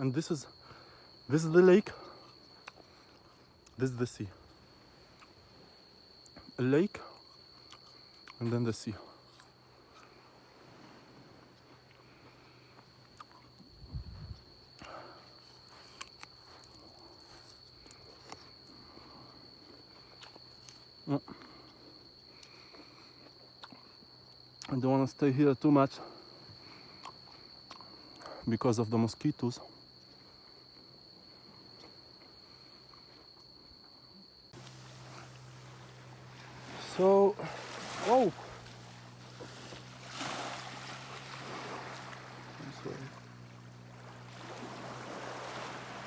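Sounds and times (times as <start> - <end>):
insects trilling: 0.0 - 46.0
faint hiss with low hum: 34.5 - 46.0.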